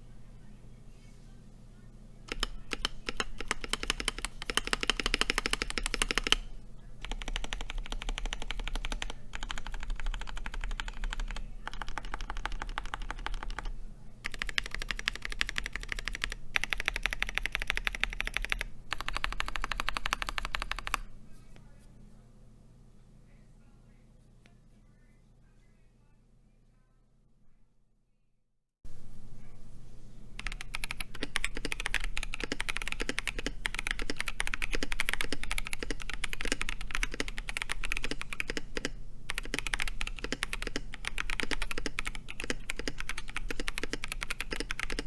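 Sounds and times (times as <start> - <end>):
mechanical keyboard typing: 2.3 - 21.1, 30.4 - 45.0.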